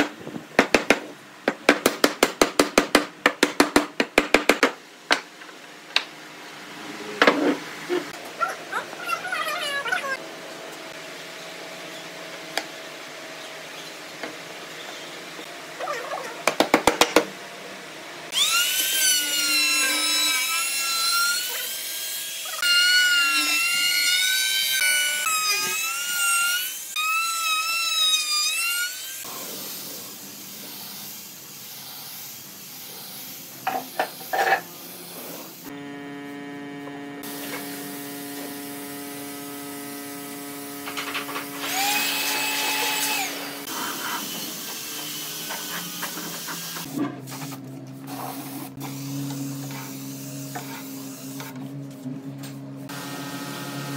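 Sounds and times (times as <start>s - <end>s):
power tool whine: 18.3s - 21.7s, 35.6s - 46.9s, 52.9s - 53.9s
steady motor hum: 35.7s - 42.0s.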